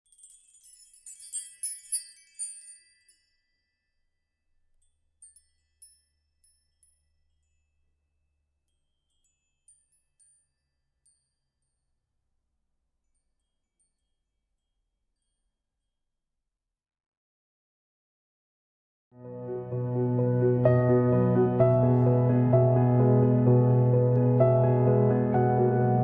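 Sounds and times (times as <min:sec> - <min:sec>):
high chimes tinkling: 0:00.0 - 0:11.8, 0:13.0 - 0:15.6.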